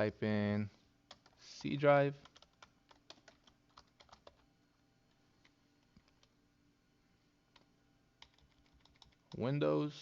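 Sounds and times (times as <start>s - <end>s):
faint keyboard clicks: 5.1s - 6.4s, 7.5s - 9.5s.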